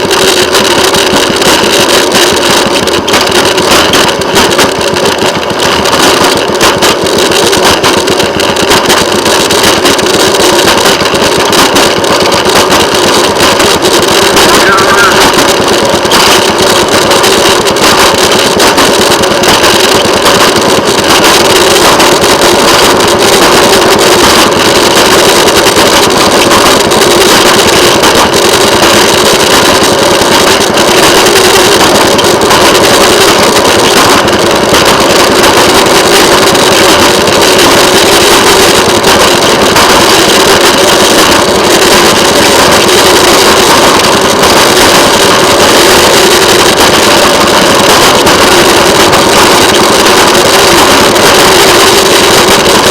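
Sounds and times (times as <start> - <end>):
rail motorcar engine running: 14.4 - 19.4.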